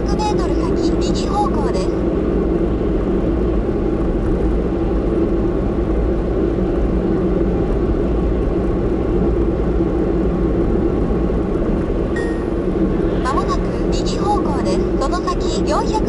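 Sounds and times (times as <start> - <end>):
car cabin road and engine rumble: 0.0 - 16.0.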